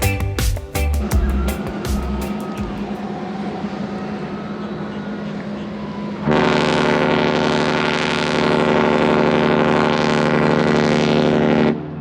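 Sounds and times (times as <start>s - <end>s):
ship horn deep blast: 3.7s - 12.0s.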